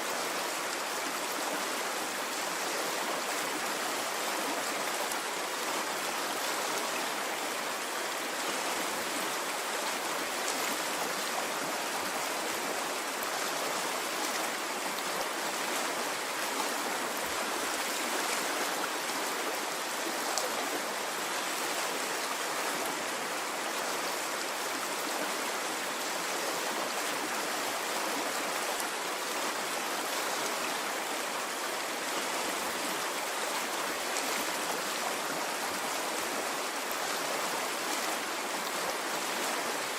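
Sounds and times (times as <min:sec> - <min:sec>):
running water stream: 0:00.0 - 0:39.9.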